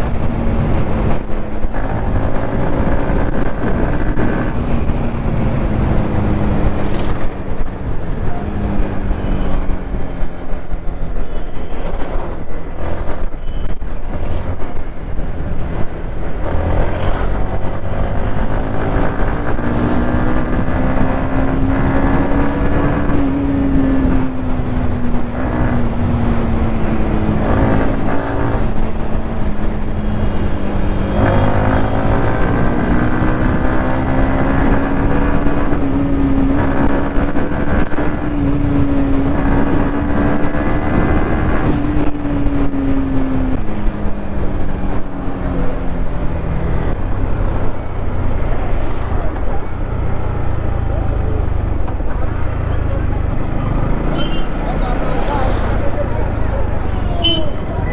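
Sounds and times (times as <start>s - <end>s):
motorcycle engine at speed: 0.0s - 11.4s, 14.4s - 57.5s.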